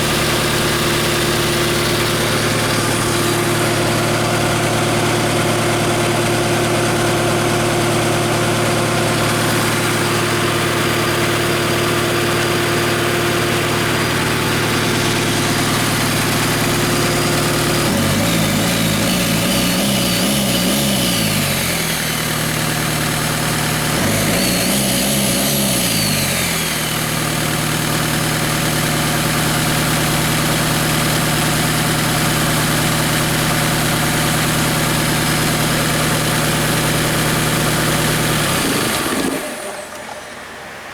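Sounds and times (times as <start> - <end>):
diesel engine idling and revving: 0.0 - 40.9.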